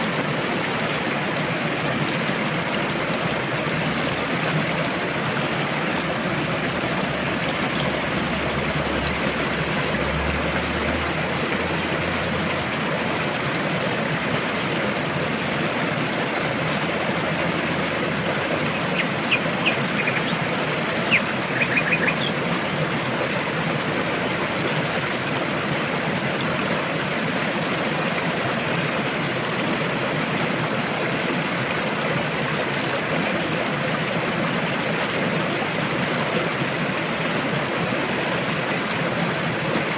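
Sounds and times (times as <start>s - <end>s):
river rushing: 0.0s - 39.9s
high bird chirps: 18.6s - 22.4s.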